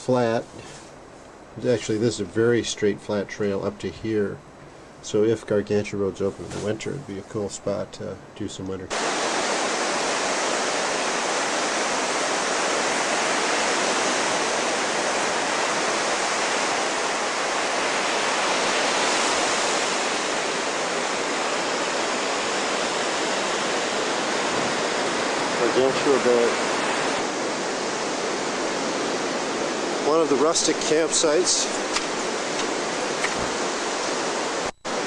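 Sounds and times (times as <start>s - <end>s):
water rushing: 8.9s - 35.0s.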